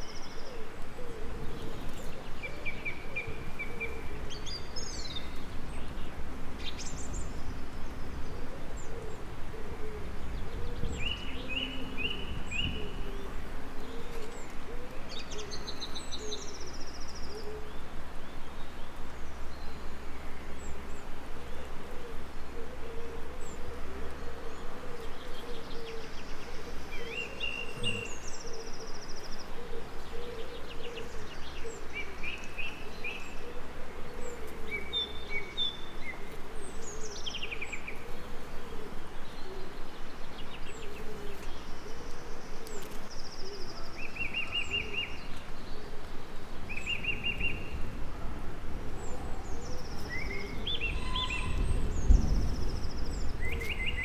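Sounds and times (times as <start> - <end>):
songbirds chirping and trilling: 0.0 - 54.0
insect buzz: 26.8 - 28.5.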